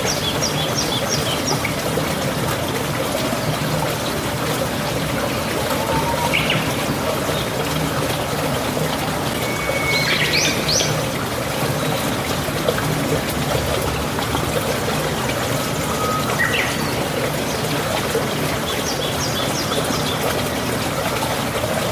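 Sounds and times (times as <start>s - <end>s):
running water: 0.0s - 21.9s
birds whistling and chirping: 5.4s - 6.8s, 9.4s - 11.0s, 15.8s - 17.0s.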